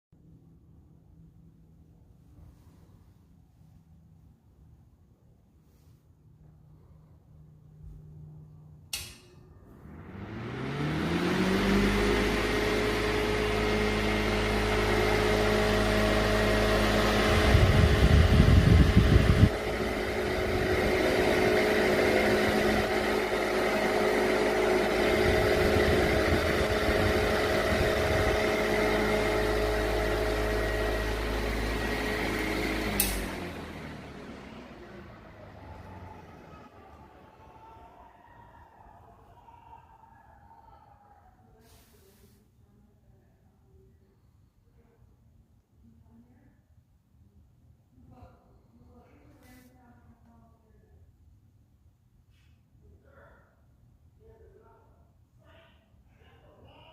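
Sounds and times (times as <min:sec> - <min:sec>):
fan switch click: 0:08.9 - 0:09.5, 0:32.9 - 0:33.4
electric fan motor humming: 0:08.9 - 0:40.0.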